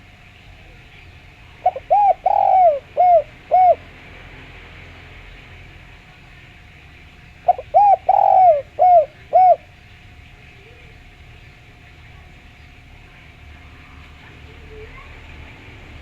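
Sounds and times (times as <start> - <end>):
dove cooing: 1.6 - 3.9, 7.4 - 9.8.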